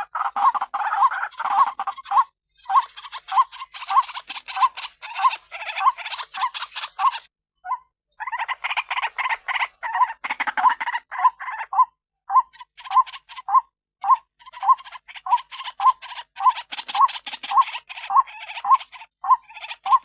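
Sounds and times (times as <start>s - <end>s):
bird harsh raspy croaking calls: 0.0s - 20.0s.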